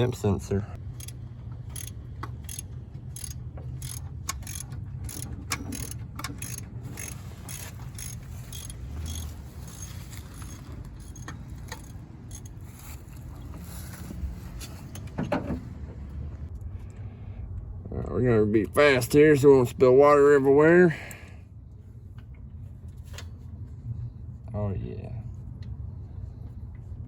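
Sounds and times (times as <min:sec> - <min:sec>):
steady low rumble: 0:00.0 - 0:27.0
hand tools clicking and tapping: 0:00.9 - 0:12.8.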